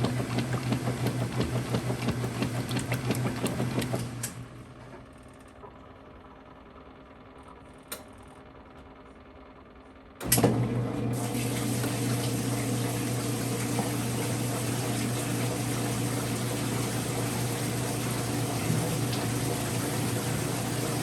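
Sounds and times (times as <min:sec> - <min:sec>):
washer start click: 0:00.0 - 0:04.4, 0:10.2 - 0:21.0
washer electrical hum: 0:00.0 - 0:21.0.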